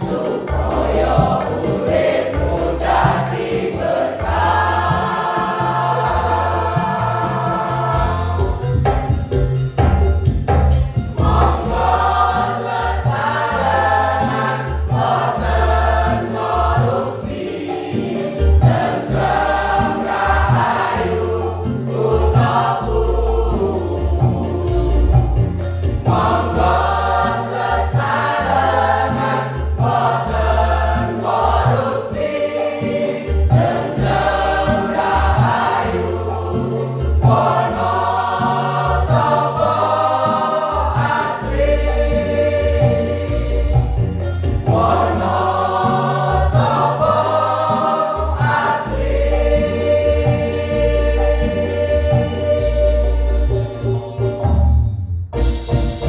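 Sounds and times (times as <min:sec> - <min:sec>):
choir singing in parts: 0:00.0 - 0:10.0, 0:10.8 - 0:54.7
short percussive beats: 0:00.0 - 0:23.0.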